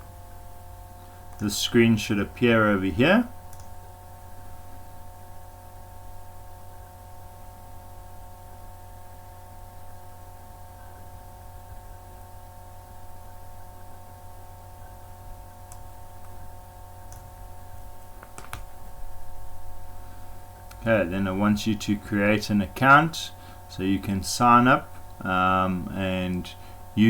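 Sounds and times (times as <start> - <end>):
electrical hum with steady tones: 0.0 - 27.0
faint mouse clicks: 3.5 - 3.8, 15.7 - 16.4.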